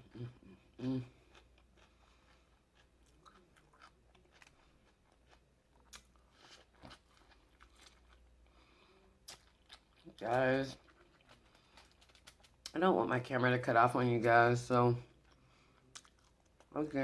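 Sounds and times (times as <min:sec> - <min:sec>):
person chewing: 0:00.0 - 0:12.8, 0:15.1 - 0:16.8.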